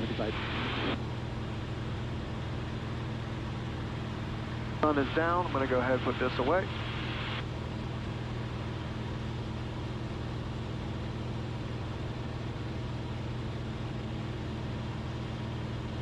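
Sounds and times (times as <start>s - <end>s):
aircraft piston engine droning: 3.1s - 9.2s.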